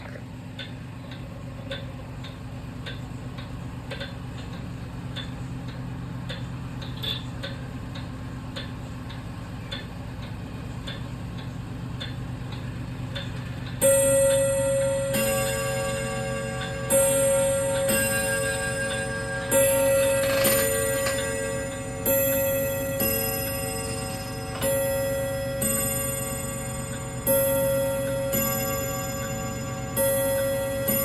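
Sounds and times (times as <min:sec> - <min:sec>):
steady low hum: 0:00.0 - 0:31.0
mechanical clock ticking: 0:00.5 - 0:31.0
clock strike ringing: 0:13.8 - 0:31.0.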